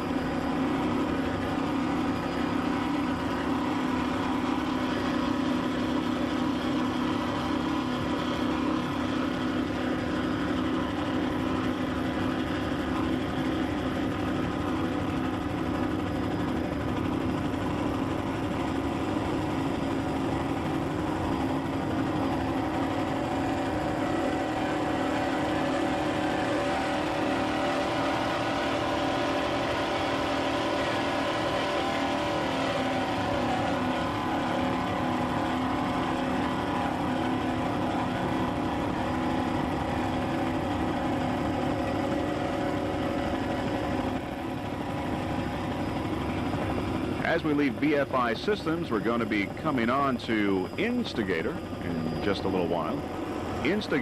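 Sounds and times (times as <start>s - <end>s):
powerboat engines droning: 0.0s - 54.0s.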